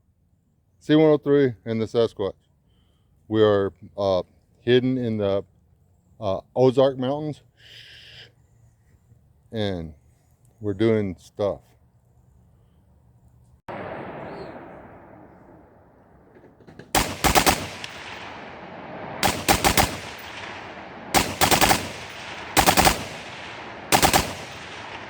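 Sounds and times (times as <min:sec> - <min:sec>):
rifle shots echoing: 0:13.7 - 0:25.0.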